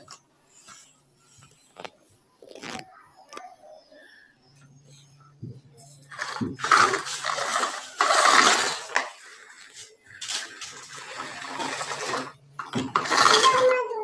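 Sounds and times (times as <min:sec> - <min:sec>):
hard objects clattering: 0:06.0 - 0:14.0.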